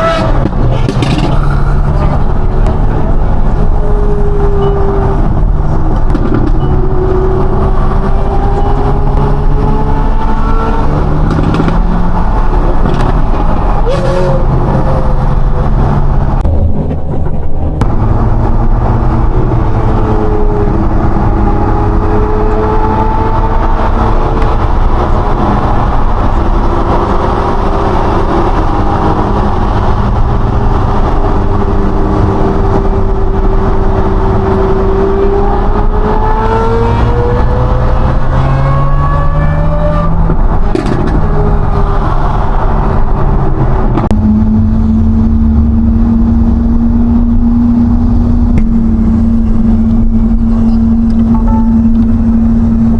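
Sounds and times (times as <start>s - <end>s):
sports car engine accelerating: 0.0s - 52.9s.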